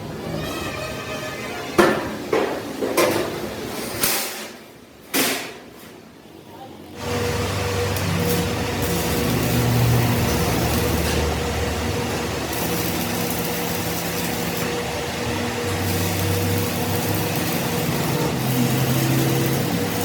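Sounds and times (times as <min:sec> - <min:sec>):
machine motor hum: 0:07.0 - 0:20.0.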